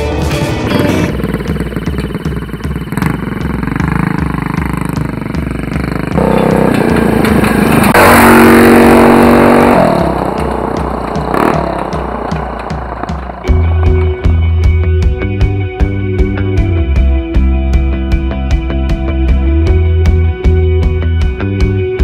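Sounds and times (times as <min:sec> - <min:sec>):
minibike engine revving: 0:00.5 - 0:14.0.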